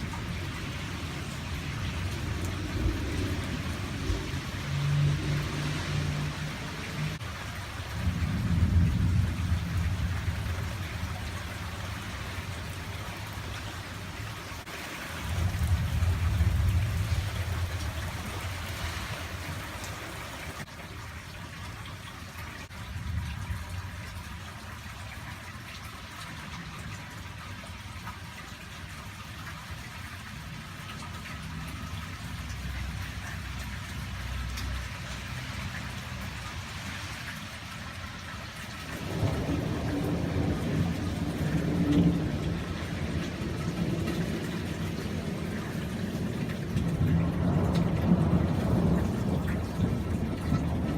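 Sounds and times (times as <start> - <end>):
thunder rumbling: 0.0 - 13.6, 14.6 - 19.7, 39.0 - 50.9
steady rain: 0.0 - 50.9.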